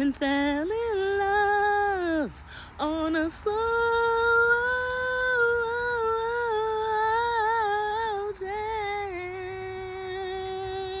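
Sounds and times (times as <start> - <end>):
woman singing unaccompanied: 0.0 - 11.0
woman breathing: 2.4 - 2.8.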